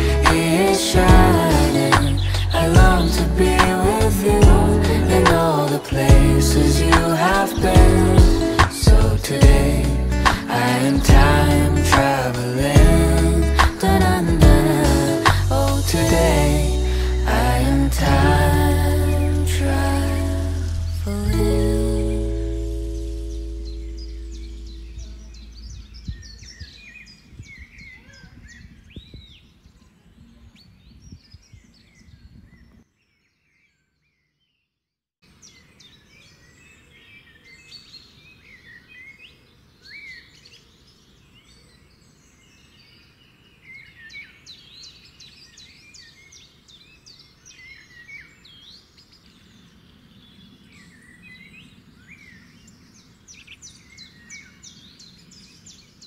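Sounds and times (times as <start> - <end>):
birds chirping and calling: 0.0 - 29.4.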